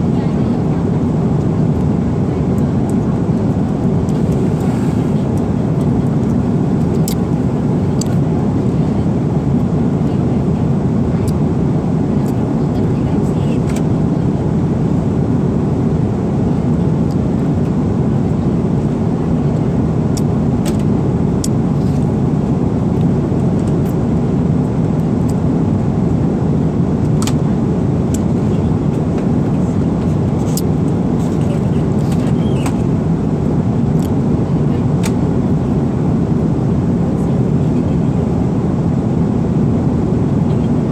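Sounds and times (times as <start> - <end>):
airliner cabin rumble: 0.0 - 40.9.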